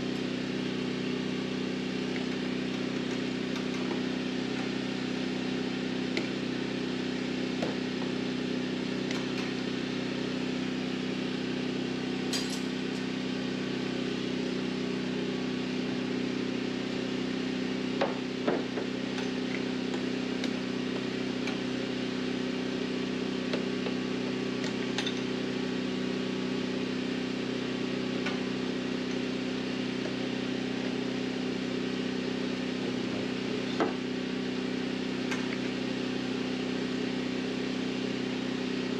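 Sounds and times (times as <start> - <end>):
mechanical hum: 0.0 - 38.9.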